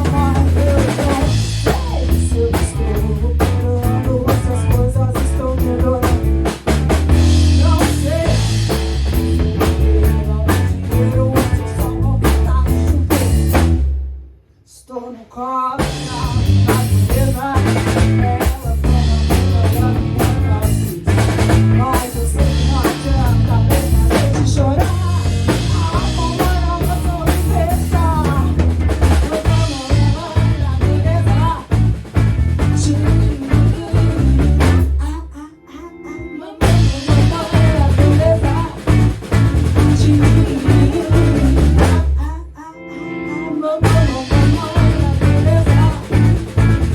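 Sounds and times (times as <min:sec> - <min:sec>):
band playing rock song: 0:00.0 - 0:13.9, 0:15.8 - 0:35.0, 0:36.6 - 0:42.2, 0:43.2 - 0:46.9
drum kit snare and bass drum: 0:00.0 - 0:14.3, 0:15.8 - 0:35.0, 0:36.6 - 0:42.2, 0:43.8 - 0:46.9.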